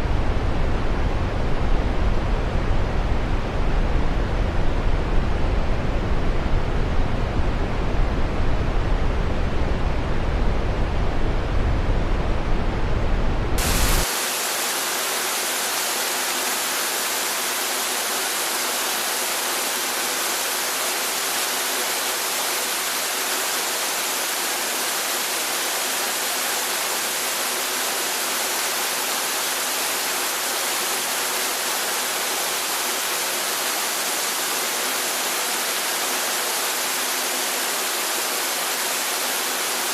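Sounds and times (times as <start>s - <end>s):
rushing water: 13.6s - 39.9s.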